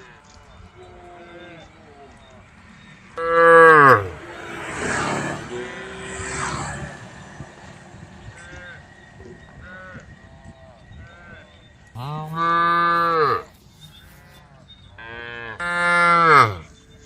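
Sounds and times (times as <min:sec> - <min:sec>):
faint distant cows mooing: 0:03.0 - 0:17.0
loud long cow moos: 0:03.2 - 0:06.0, 0:12.0 - 0:13.5, 0:15.0 - 0:16.7.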